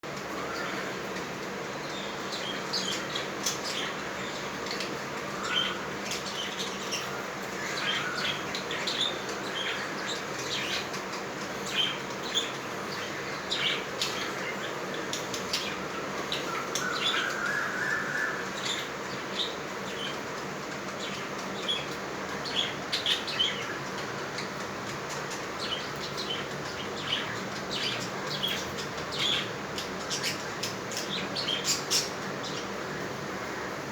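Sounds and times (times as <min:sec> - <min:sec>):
lovebirds chirping: 0:00.0 - 0:33.9.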